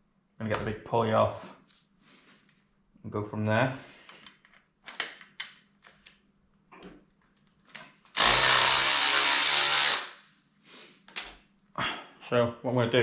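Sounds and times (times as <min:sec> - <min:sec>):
impact wrench running: 0:08.2 - 0:10.2.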